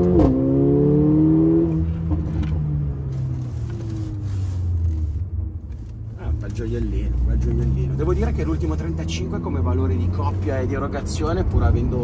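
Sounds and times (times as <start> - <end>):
car engine revving: 0.0 - 5.2, 6.2 - 12.0.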